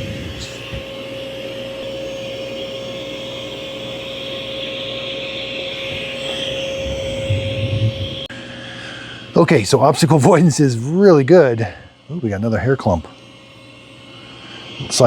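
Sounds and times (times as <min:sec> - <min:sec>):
robot vacuum motor whine: 0:00.0 - 0:08.3
brief low rumble: 0:06.8 - 0:08.3.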